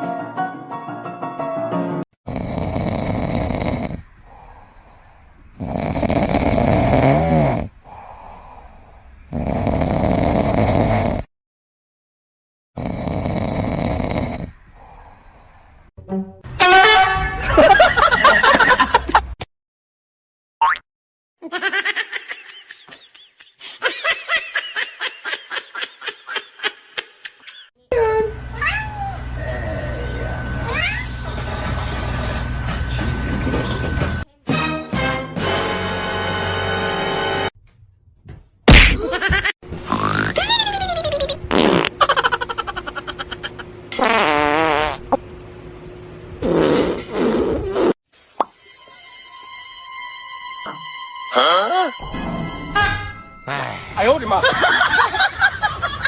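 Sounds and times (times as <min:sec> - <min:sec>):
loud snoring: 0:02.2 - 0:04.5, 0:05.5 - 0:08.4, 0:09.3 - 0:11.3, 0:12.8 - 0:15.2, 0:39.8 - 0:40.4, 0:46.4 - 0:48.0
quiet breathing: 0:04.0 - 0:05.7, 0:07.7 - 0:09.3, 0:14.4 - 0:15.9
person laughing hard: 0:17.4 - 0:19.4, 0:21.4 - 0:27.7, 0:38.7 - 0:39.5, 0:40.3 - 0:41.4, 0:42.0 - 0:43.6.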